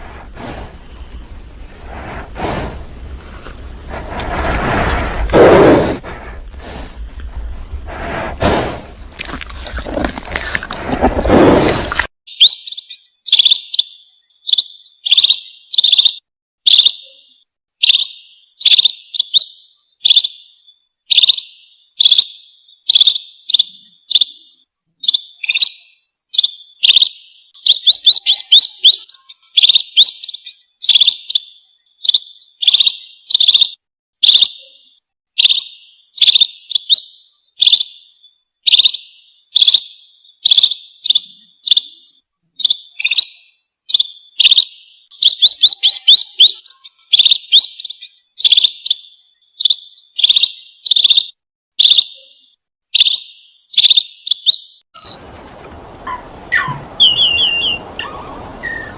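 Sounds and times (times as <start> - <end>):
small bird chirping: 12.3 - 55.3, 56.0 - 58.9.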